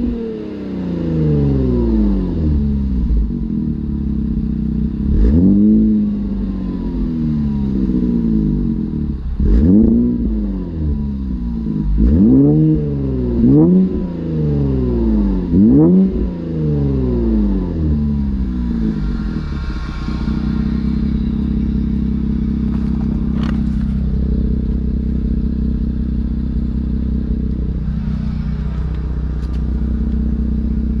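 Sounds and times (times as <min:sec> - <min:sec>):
car engine revving and idling: 0:00.0 - 0:31.0.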